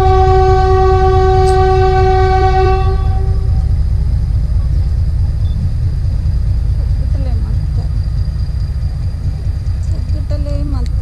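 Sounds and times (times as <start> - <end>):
locomotive horn: 0.0 - 3.8
train rumbling on track: 0.0 - 11.0.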